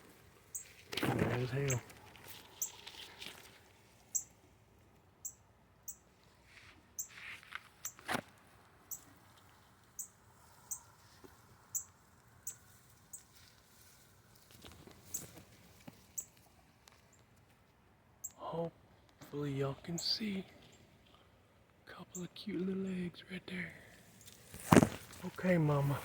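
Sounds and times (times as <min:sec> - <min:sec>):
branches rustling: 0:00.0 - 0:04.6, 0:06.3 - 0:17.6, 0:24.0 - 0:26.0
bird alarm chips: 0:00.5 - 0:03.2, 0:04.1 - 0:04.4, 0:15.0 - 0:15.4, 0:16.2 - 0:16.4
knock on branches: 0:24.6 - 0:25.2.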